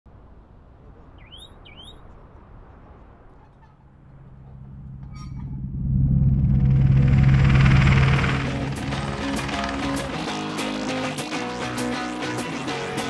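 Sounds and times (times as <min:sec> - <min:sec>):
small bird chirping: 0:01.2 - 0:02.1
low outdoor rumble: 0:02.0 - 0:11.0
low steady hum: 0:03.8 - 0:10.2.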